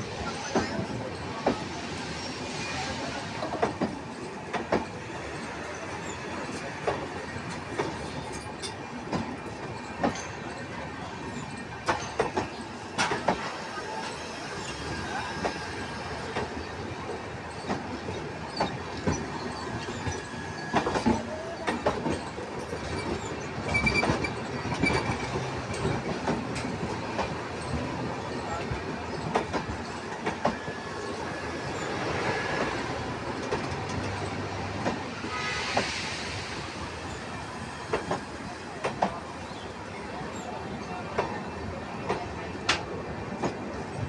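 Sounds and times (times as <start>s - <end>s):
train wagons rumbling: 0.0s - 44.0s
faint wheel squeal: 18.4s - 25.4s.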